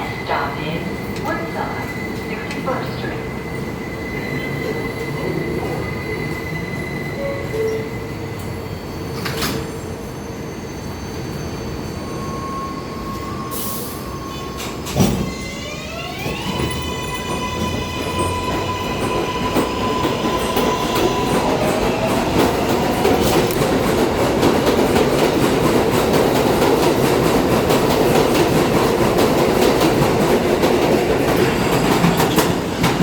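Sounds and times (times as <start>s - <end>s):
train wheel rumble on rails: 14.3s - 33.0s.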